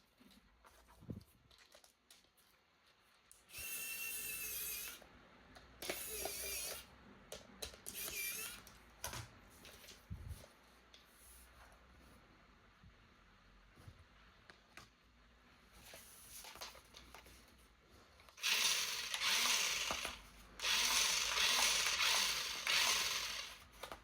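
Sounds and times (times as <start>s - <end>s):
toy electric motor whirring: 3.5s - 5.0s, 5.8s - 6.9s, 7.9s - 8.7s, 18.4s - 23.9s.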